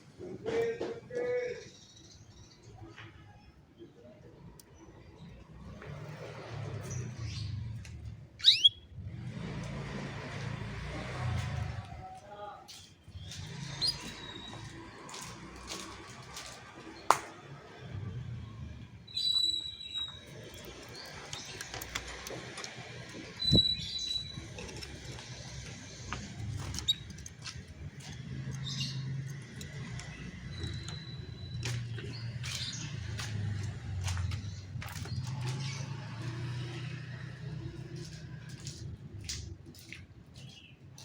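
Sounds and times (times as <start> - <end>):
canary chirping: 8.4 - 8.9, 13.2 - 14.8, 19.1 - 27.3, 28.2 - 33.2.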